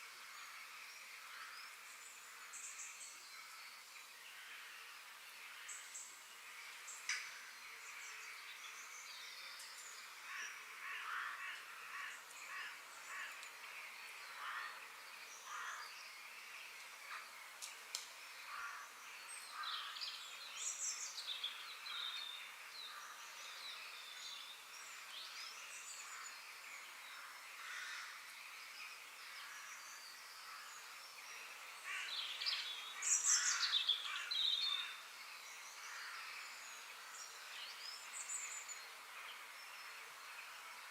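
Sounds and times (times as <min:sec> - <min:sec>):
faint steady hiss: 0:00.0 - 0:40.9
birds chirping and calling: 0:29.3 - 0:38.9.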